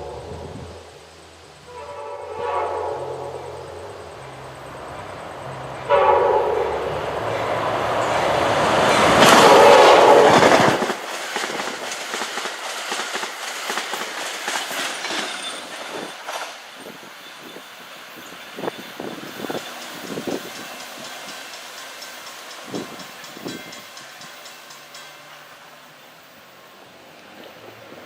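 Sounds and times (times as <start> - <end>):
train horn: 0.0 - 0.9, 1.6 - 7.8, 9.2 - 11.0
locomotive engine drone: 0.0 - 11.1
train wheels clickety-clack: 7.5 - 25.7.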